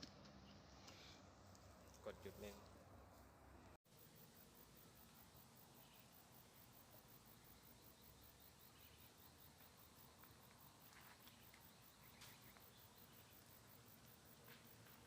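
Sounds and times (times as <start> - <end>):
high-pitched insect chirping: 3.9 - 15.0.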